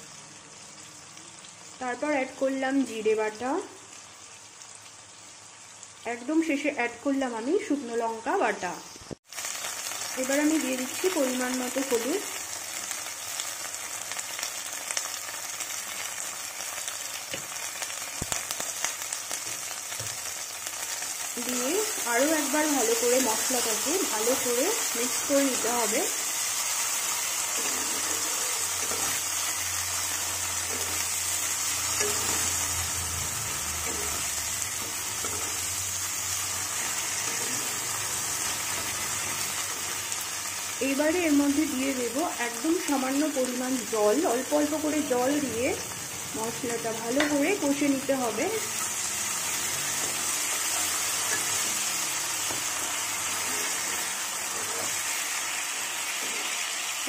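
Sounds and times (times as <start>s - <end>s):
paste sizzling in oil: 8.2s - 57.0s
metal spatula scraping wok: 27.0s - 40.0s, 47.2s - 55.4s, 56.0s - 56.6s.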